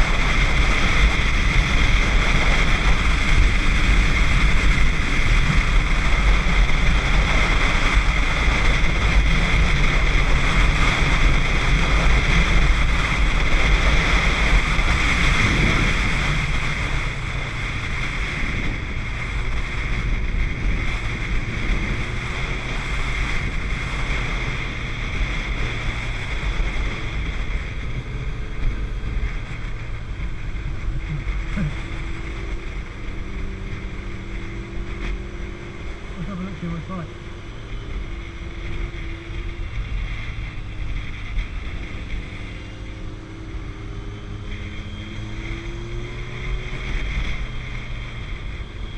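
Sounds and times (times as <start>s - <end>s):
motorcycle engine running: 0.0s - 48.9s
wind rushing over microphone: 0.0s - 48.9s.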